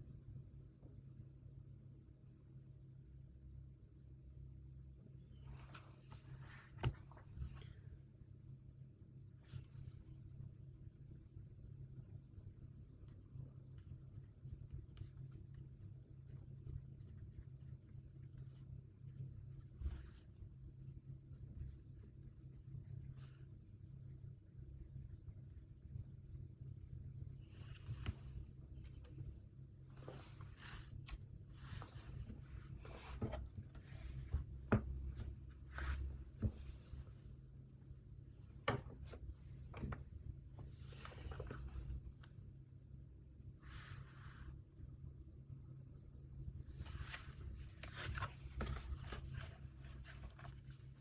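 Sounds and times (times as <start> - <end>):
low room hum: 0.0 - 51.0
soft rustles on desk: 5.4 - 8.0, 19.6 - 20.4, 27.2 - 37.4, 38.4 - 42.4, 43.6 - 44.6, 46.6 - 51.0
light taps and knocks on desk: 31.8 - 37.0, 38.5 - 41.8.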